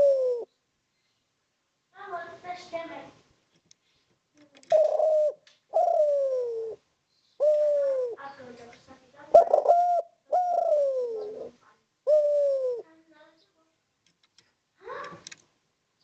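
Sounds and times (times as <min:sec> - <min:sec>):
dove cooing: 0:00.0 - 0:00.5, 0:04.6 - 0:06.8, 0:07.4 - 0:08.5, 0:09.3 - 0:12.9.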